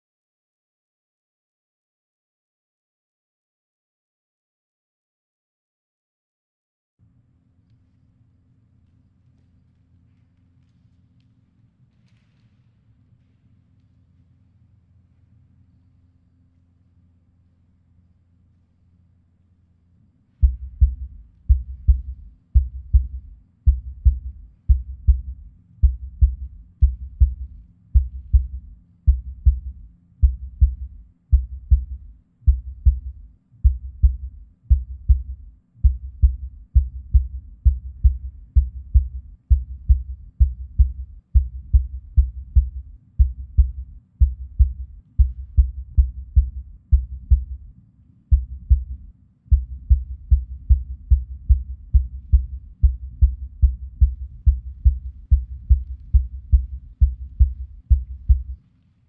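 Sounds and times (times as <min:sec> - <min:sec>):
deep thudding double-beat pulse: 0:20.4 - 0:47.7, 0:48.3 - 0:58.6.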